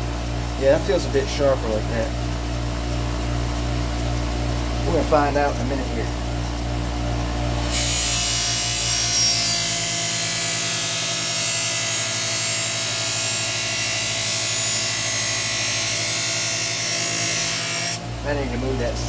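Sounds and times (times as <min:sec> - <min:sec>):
bench grinder motor hum: 0:00.0 - 0:19.0
blade hissing on buffing wheel: 0:07.6 - 0:18.8.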